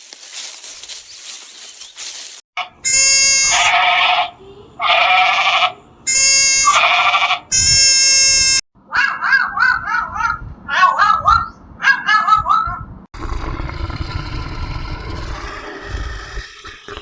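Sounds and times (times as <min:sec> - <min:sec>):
farm animal bleating: 0:02.6 - 0:08.6.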